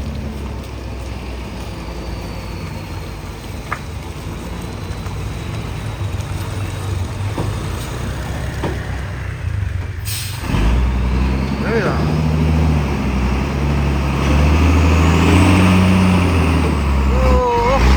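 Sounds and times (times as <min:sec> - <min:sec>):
heavy truck engine running: 0:00.0 - 0:17.9.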